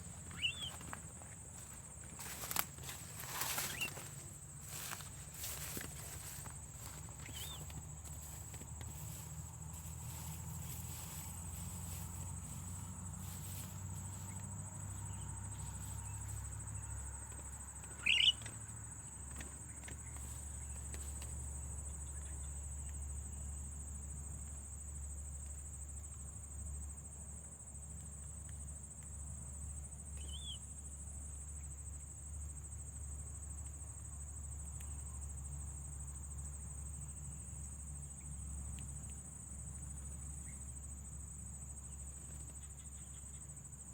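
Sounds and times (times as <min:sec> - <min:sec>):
insect trill: 0:00.0 - 0:43.9
bird chirp: 0:00.2 - 0:00.9, 0:03.4 - 0:04.0, 0:07.2 - 0:07.8, 0:17.9 - 0:18.5, 0:30.2 - 0:30.6.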